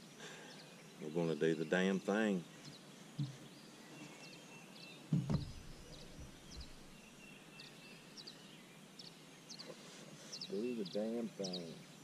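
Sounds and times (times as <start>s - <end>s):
faint steady hiss: 0.0s - 12.0s
small birds chirping: 0.0s - 12.0s
heavy thump on boat deck: 5.1s - 7.0s.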